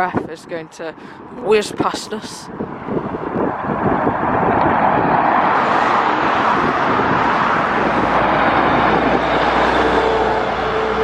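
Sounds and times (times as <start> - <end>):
diesel lorry driving past: 3.1 - 11.0.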